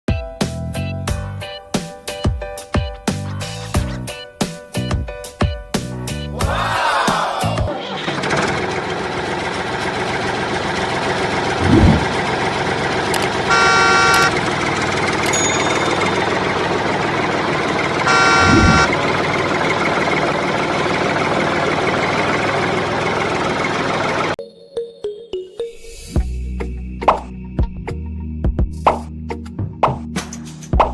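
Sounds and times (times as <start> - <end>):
vehicle engine running: 8.0 - 24.4
dull thump: 11.6 - 12.2
horn honks: 13.2 - 14.7, 17.9 - 18.9.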